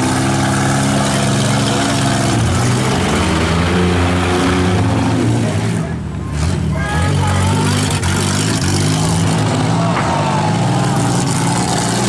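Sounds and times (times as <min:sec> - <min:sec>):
loud car engines revving: 0:00.0 - 0:12.0.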